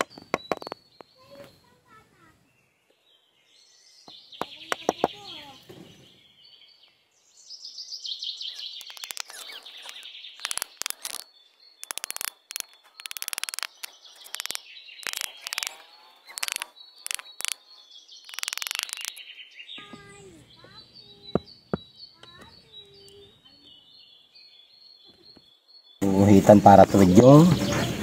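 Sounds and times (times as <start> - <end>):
birds chirping and calling: 0.0 - 28.0
short sharp clicks: 8.5 - 17.7, 18.3 - 19.2.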